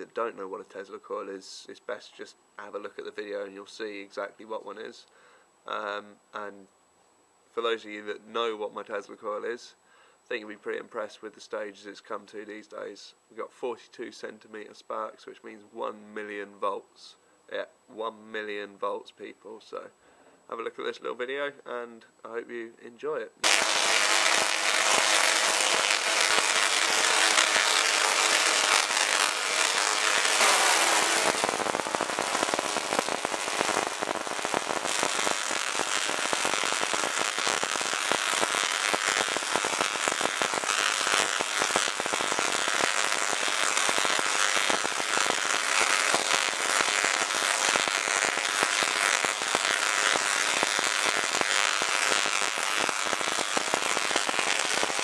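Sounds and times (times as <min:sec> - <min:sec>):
tesla coil sparks crackling: 0:23.4 - 0:55.0.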